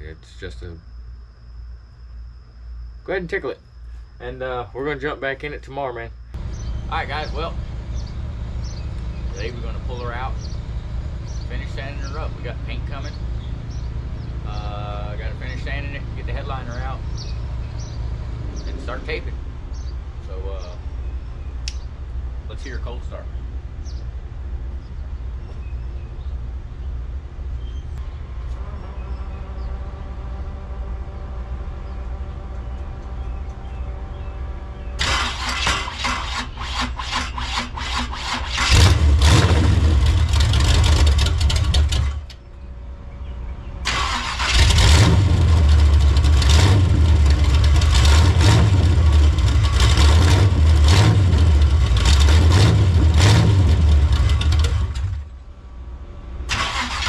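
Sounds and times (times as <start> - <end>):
steady hum: 0.0 - 38.2
car engine running: 6.2 - 57.0
starter cranking: 35.0 - 42.4.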